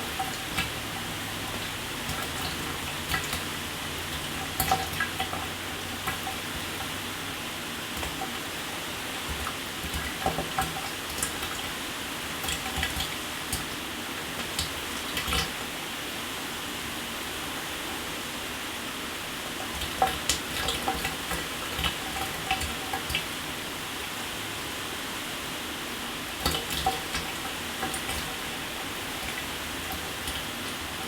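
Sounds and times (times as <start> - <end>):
water splashes and drips: 0.0 - 15.8, 19.5 - 23.8, 26.3 - 31.0
shower running: 0.0 - 31.0.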